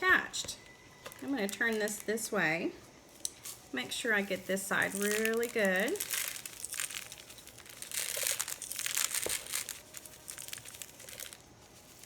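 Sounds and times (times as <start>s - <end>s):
birdseed pouring and rustling: 4.0s - 12.0s.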